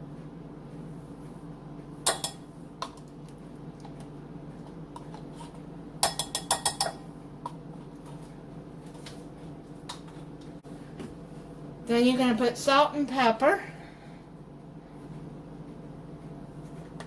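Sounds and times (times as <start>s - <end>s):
steady low hum: 0.0s - 17.0s
spoon clinking against bowl: 6.0s - 7.0s.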